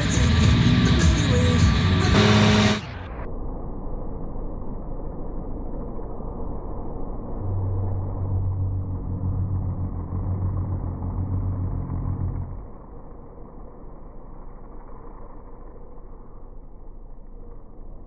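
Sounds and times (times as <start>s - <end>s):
machinery engine rumbling: 2.2s - 3.0s
low steady drone: 2.2s - 18.0s.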